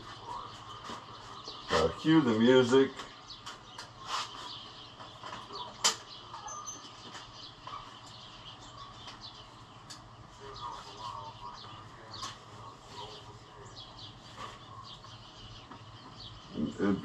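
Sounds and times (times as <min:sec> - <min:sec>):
faint bird chirps: 0:00.0 - 0:17.0.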